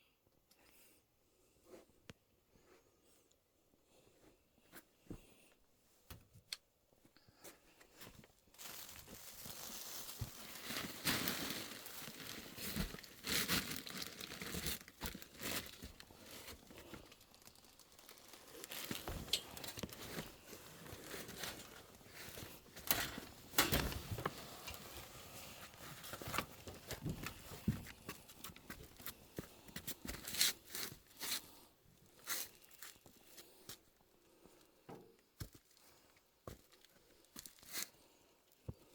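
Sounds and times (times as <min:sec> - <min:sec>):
plastic packaging tearing and crumpling: 0:08.6 - 0:25.2.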